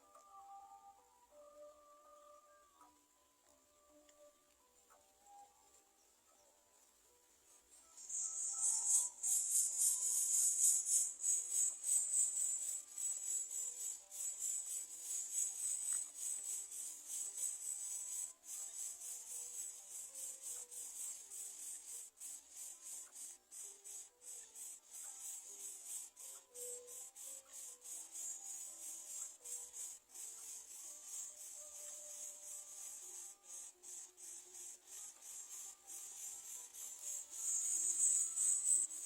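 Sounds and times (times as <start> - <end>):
faint scattered tones: 0.0 - 39.0
insects chorus: 7.8 - 39.0.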